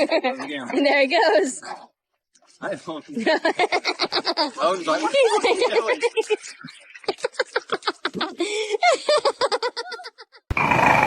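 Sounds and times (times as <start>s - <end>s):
person laughing: 3.2s - 10.4s.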